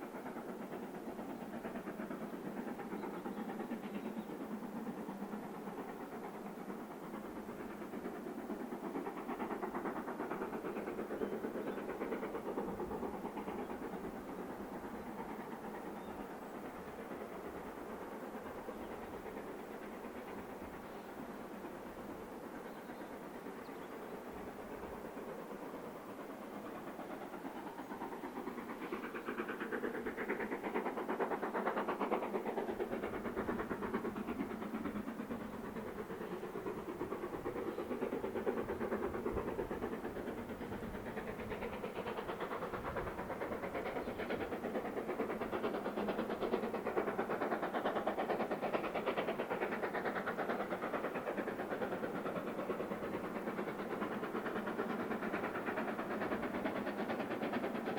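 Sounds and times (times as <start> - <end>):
steam locomotive exhaust: 0.0 - 57.9
train wheels on rails: 0.0 - 57.9.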